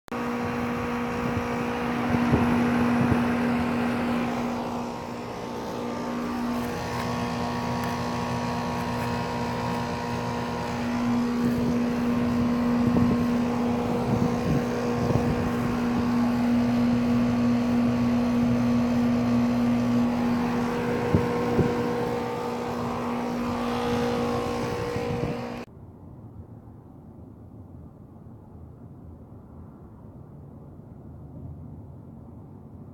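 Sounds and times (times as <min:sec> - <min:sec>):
air conditioner motor hum: 0:00.1 - 0:25.7
rushing fan noise: 0:00.1 - 0:25.7.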